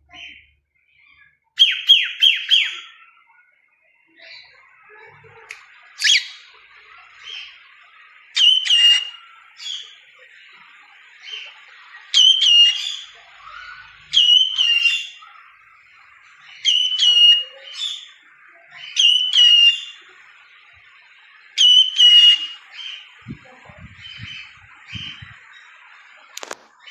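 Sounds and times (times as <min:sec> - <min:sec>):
soft bird chirps: 0:00.0 - 0:26.9
cockatiel whistling: 0:01.6 - 0:02.8, 0:06.0 - 0:06.4, 0:08.4 - 0:09.8, 0:12.2 - 0:13.0, 0:13.6 - 0:15.2, 0:16.6 - 0:17.9, 0:19.0 - 0:20.0, 0:21.6 - 0:22.9.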